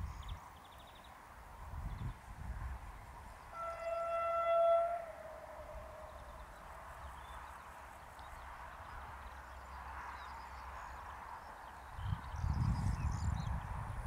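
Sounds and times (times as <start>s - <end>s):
wheels rumbling on track: 0.0s - 14.0s
diesel railcar engine: 3.0s - 11.9s.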